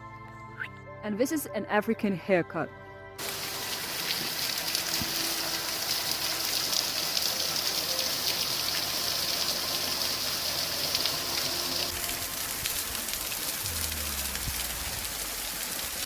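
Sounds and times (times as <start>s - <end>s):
waterfall rushing: 3.2s - 16.0s.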